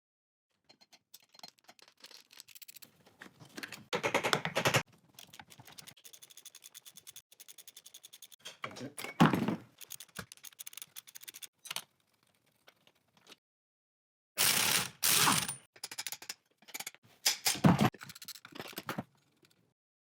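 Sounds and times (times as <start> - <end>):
hand tools clicking on metal: 3.6 - 8.6, 9.8 - 11.5.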